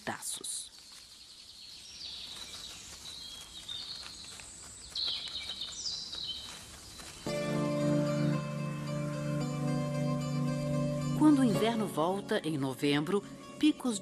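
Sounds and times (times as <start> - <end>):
birds chirping and trilling: 0.3 - 14.0
music: 7.3 - 14.0.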